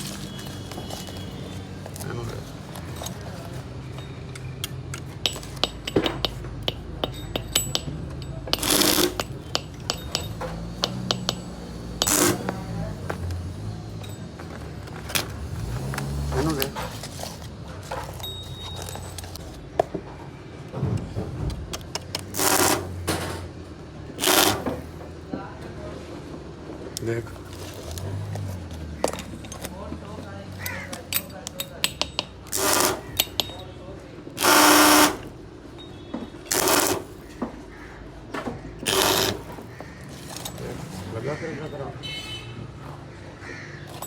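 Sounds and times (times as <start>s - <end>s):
metallic tool clinks: 3.9s - 12.5s, 18.0s - 19.5s, 33.2s - 33.7s
pneumatic tool bursts: 8.5s - 10.2s, 12.0s - 12.6s, 22.1s - 23.4s, 24.2s - 24.9s, 32.4s - 33.6s, 34.4s - 35.3s, 36.5s - 37.2s, 38.8s - 39.7s.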